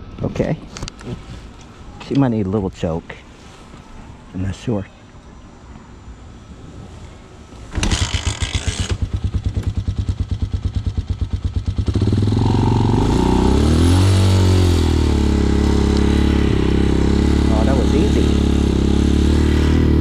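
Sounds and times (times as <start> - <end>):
motorcycle engine kick-started: 7.7 - 12.1
motorcycle engine idling and revving: 7.8 - 20.0.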